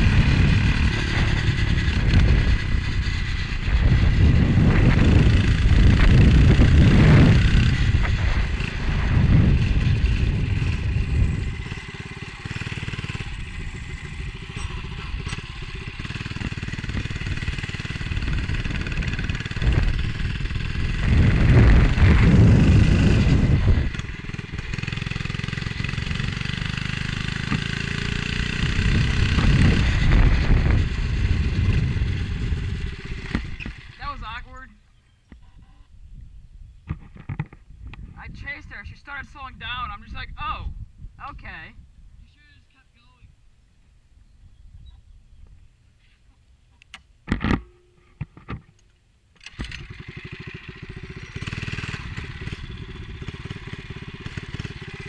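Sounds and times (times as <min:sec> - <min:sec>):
wind buffeting on microphone: 0:00.0 - 0:25.0, 0:28.5 - 0:34.2, 0:35.4 - 0:42.4
minibike engine running: 0:00.0 - 0:34.5, 0:49.4 - 0:55.0.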